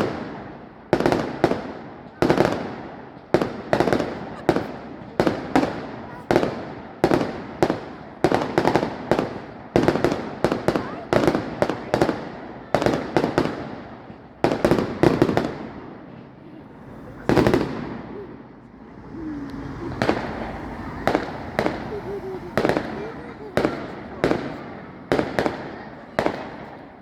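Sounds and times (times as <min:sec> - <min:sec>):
fireworks bursting: 0:00.0 - 0:27.0
big firework bang: 0:19.5 - 0:26.9.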